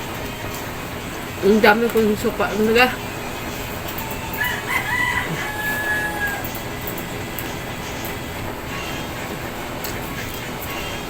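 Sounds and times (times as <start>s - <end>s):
rooster crowing: 3.7s - 7.2s.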